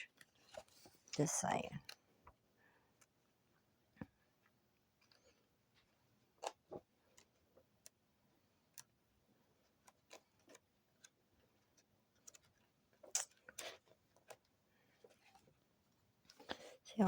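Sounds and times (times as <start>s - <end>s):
book being handled: 0.0s - 2.0s.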